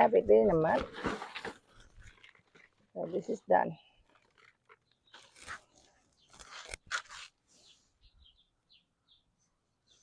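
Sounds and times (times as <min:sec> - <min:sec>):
faint rustling and crunching: 0:00.0 - 0:07.8
small bird chirping: 0:04.0 - 0:10.0.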